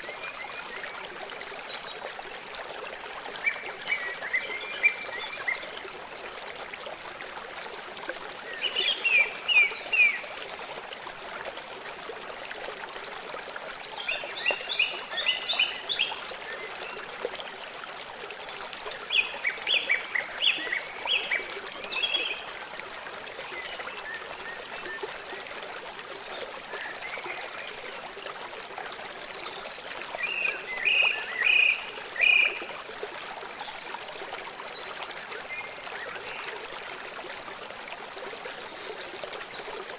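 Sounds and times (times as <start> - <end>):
small stream rushing: 0.0 - 39.9.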